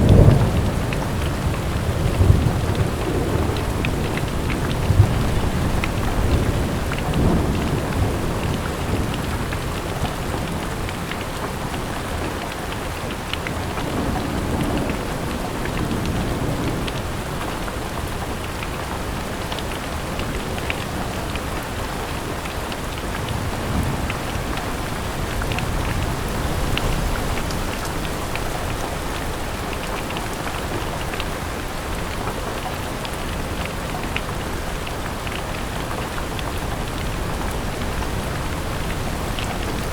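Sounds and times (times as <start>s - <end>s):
thunder rumbling: 0.0s - 11.0s
rain pattering on a window: 0.0s - 39.9s.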